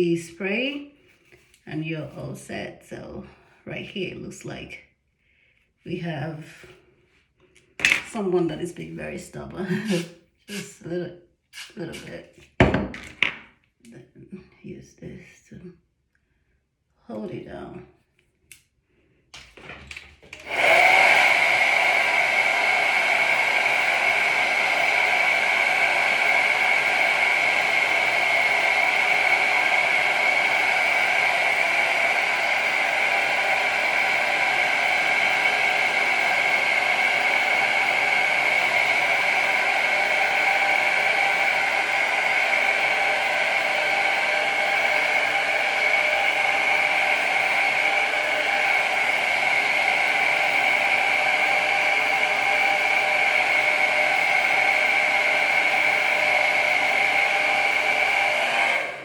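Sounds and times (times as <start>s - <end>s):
hair dryer whining airflow: 7.8s - 11.0s, 11.6s - 13.3s, 19.4s - 59.0s.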